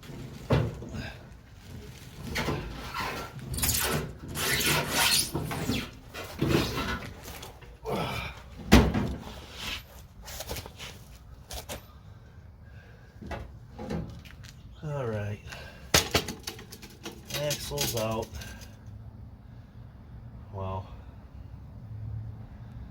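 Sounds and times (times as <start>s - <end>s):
metal scraping and rubbing: 1.7s - 7.6s
metal clunks: 15.9s - 18.1s.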